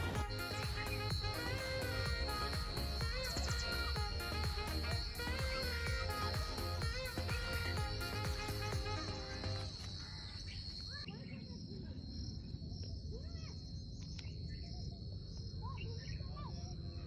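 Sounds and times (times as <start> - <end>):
birds chirping: 0.0 - 11.2
insects droning: 0.0 - 17.0.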